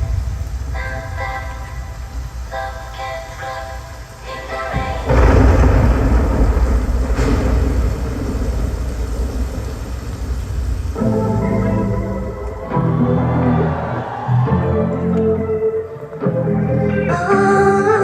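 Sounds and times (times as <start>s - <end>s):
thunder rumble: 0.0s - 14.9s
rain hiss: 0.0s - 16.6s
synth music notes: 10.8s - 18.0s.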